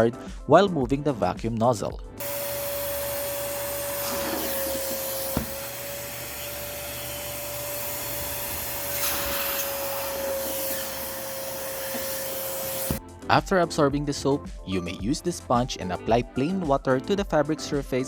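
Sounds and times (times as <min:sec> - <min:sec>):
vacuum cleaner whining: 0:02.2 - 0:13.0.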